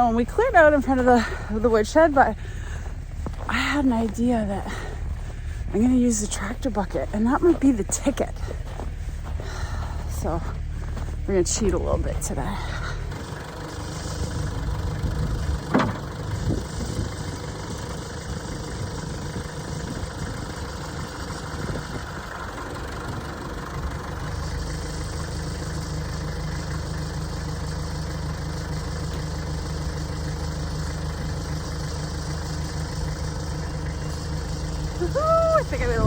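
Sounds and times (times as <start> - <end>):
tractor engine running: 0.0 - 36.0
sharp clunks: 15.7 - 16.1.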